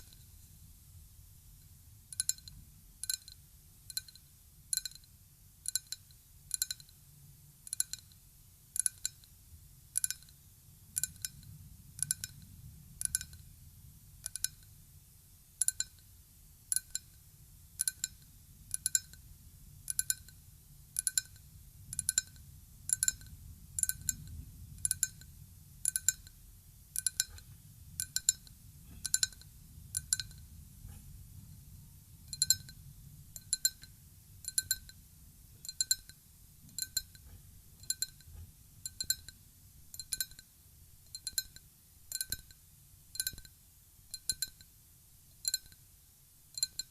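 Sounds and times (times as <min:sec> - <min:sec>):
glass clinking: 0:32.3 - 0:32.8, 0:36.8 - 0:37.2, 0:38.9 - 0:39.3, 0:40.0 - 0:40.4, 0:44.2 - 0:44.6.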